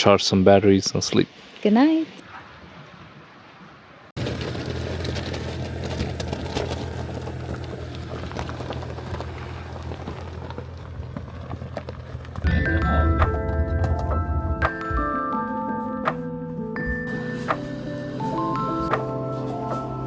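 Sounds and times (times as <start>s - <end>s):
car engine and road drone: 4.2s - 14.6s, 17.1s - 20.0s
tyre noise: 4.2s - 14.7s.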